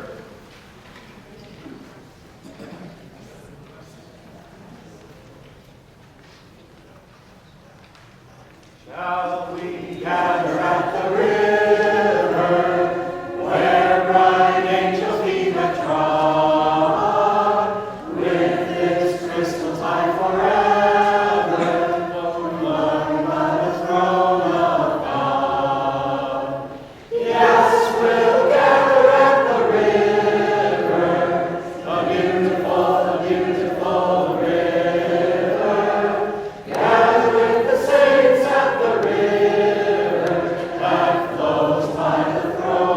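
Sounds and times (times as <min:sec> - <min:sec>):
choir singing in harmony: 0:08.9 - 0:42.9.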